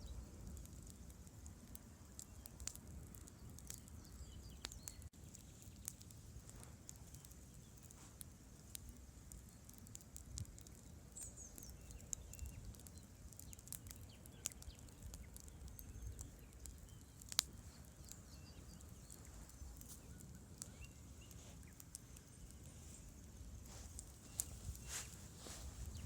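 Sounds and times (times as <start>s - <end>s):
campfire crackling and popping: 0.0s - 26.0s
faint low rumble: 15.0s - 26.0s.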